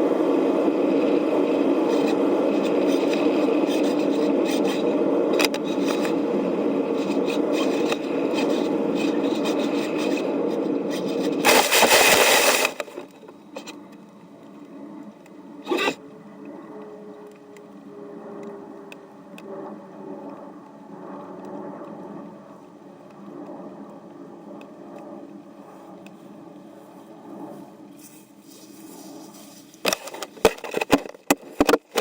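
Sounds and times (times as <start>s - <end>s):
fuselage scraping along ground: 0.0s - 13.8s, 25.7s - 30.9s.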